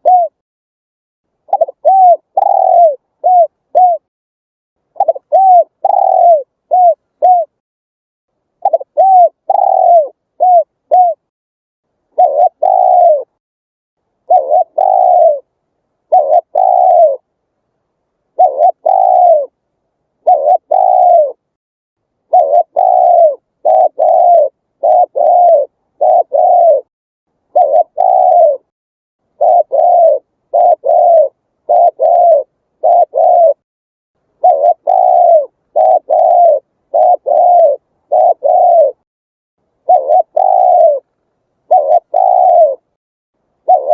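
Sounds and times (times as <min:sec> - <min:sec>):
dove cooing: 0:00.0 - 0:00.4, 0:01.5 - 0:04.1, 0:05.0 - 0:07.6, 0:08.6 - 0:11.3, 0:12.1 - 0:13.4, 0:14.3 - 0:15.5, 0:16.1 - 0:17.3, 0:18.3 - 0:19.6, 0:20.2 - 0:21.4, 0:22.3 - 0:26.9, 0:27.5 - 0:28.7, 0:29.3 - 0:33.6, 0:34.4 - 0:39.0, 0:39.8 - 0:43.0, 0:43.6 - 0:43.9.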